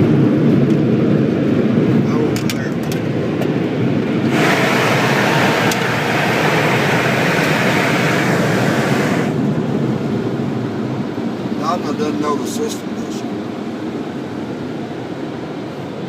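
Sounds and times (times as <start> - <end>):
car wash blowers rushing air: 0.0 - 16.0
bright blower hiss: 4.3 - 9.4.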